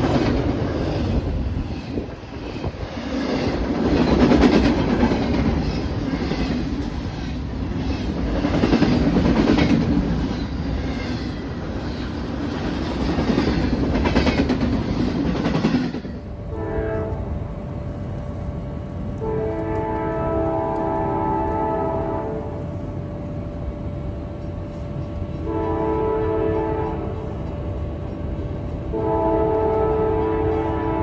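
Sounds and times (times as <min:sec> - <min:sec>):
train wheels clicking over rail joints: 0:00.0 - 0:16.3
steady horn-like tones: 0:16.5 - 0:17.4, 0:19.2 - 0:22.7, 0:28.9 - 0:31.0.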